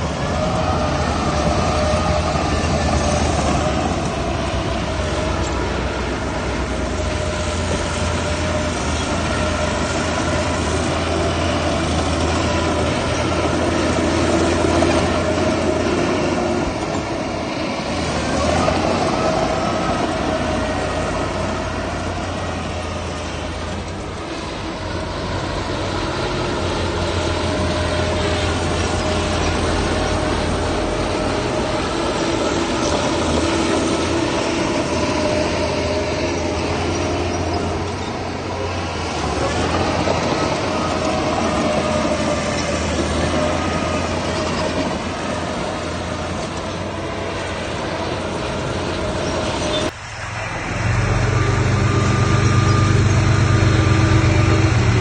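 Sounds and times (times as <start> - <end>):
heavy diesel machinery engine drone: 0.0 - 55.0.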